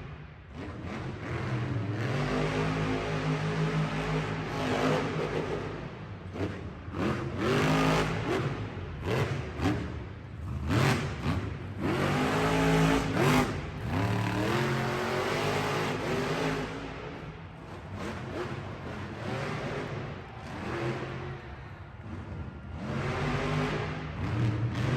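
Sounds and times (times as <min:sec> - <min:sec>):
truck engine revving hard: 0:10.4 - 0:21.3, 0:22.0 - 0:24.9.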